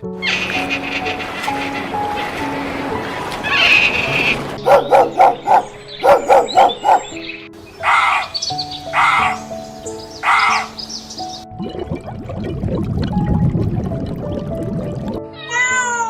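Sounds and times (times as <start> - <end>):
background music: 0.0 - 16.0
animal calls: 0.2 - 2.0, 3.4 - 9.6, 10.2 - 10.9.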